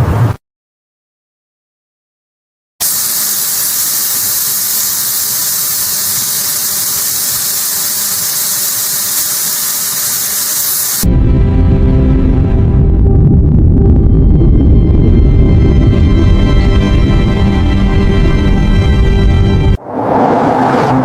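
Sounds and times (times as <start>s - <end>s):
steady even hiss: 2.8s - 11.1s
music: 11.0s - 19.8s.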